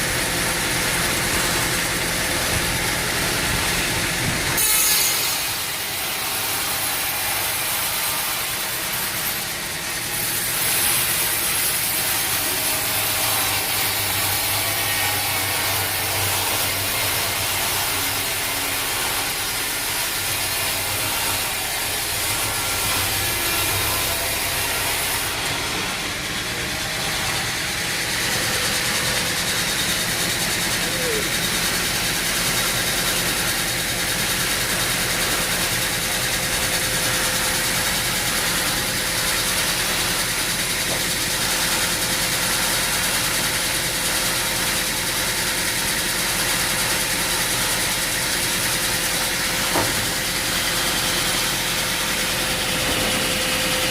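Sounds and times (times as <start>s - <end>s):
saw cutting through log: 0.0s - 53.9s
sawmill engine hum: 0.0s - 53.9s.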